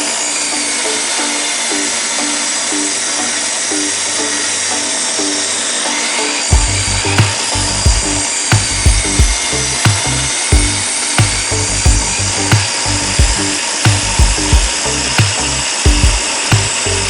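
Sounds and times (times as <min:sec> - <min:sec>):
table saw ripping wood: 0:00.0 - 0:17.0
background music with low thumps: 0:06.5 - 0:17.0.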